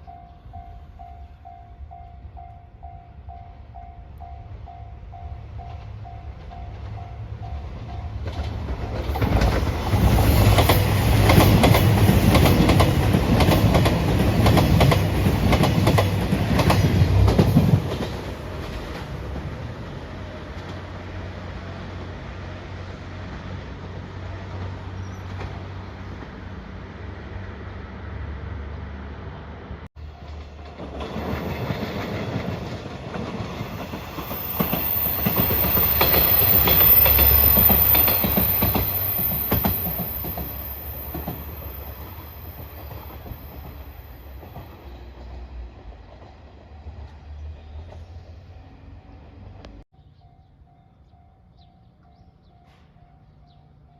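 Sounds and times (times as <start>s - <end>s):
train wheels clattering over joints: 30.3s - 44.8s.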